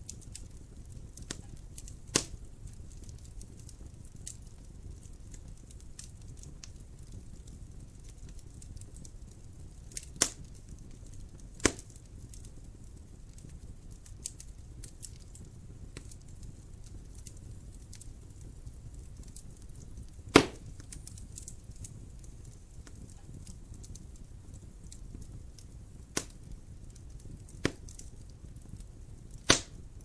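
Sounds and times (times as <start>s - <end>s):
wood fire crackling: 0.0s - 30.0s
loud sharp fire pops: 0.1s - 6.8s, 8.3s - 30.0s.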